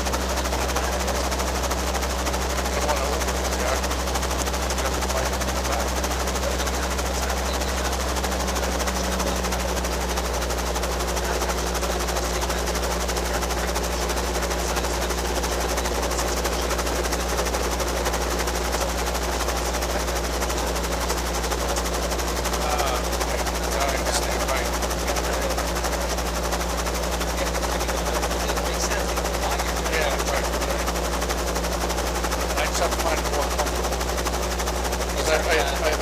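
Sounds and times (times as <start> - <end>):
helicopter engine and rotor: 0.0 - 36.0.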